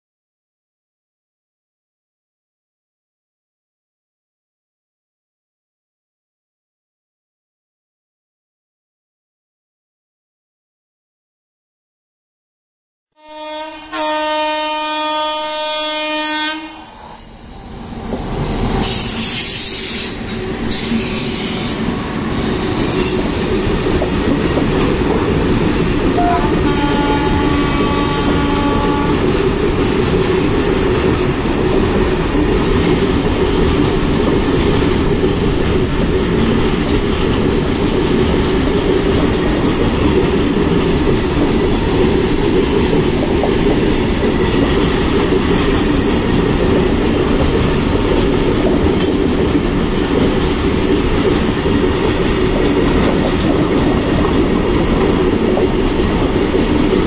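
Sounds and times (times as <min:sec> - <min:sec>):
freight train wagons rolling on rails: 0:17.3 - 0:57.0.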